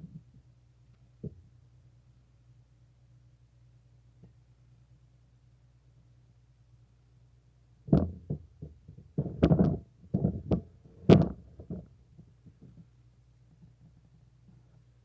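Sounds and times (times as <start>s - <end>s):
sharp knocks and thumps: 7.9s - 11.9s.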